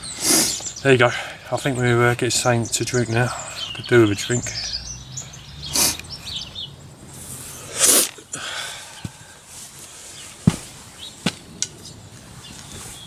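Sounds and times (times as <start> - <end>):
birds chirping: 0.0 - 13.0
short rushing noises: 5.6 - 6.2.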